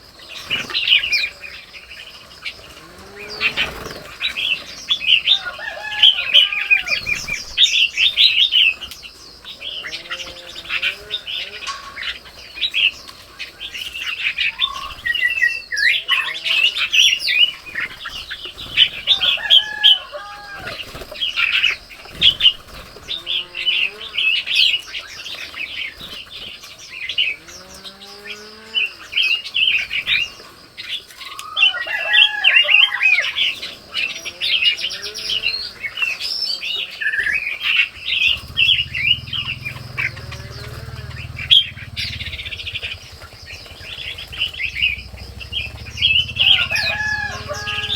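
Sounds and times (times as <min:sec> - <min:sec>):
birds chirping: 0:00.0 - 0:47.9
lower whistled bird notes: 0:35.2 - 0:47.9.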